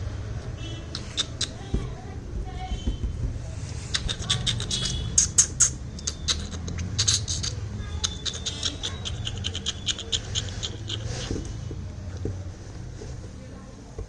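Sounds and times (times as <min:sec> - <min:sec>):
fledgling bird cheeping: 0:00.6 - 0:01.6, 0:03.8 - 0:11.3
scratching and clicking: 0:00.9 - 0:01.9, 0:03.8 - 0:12.4.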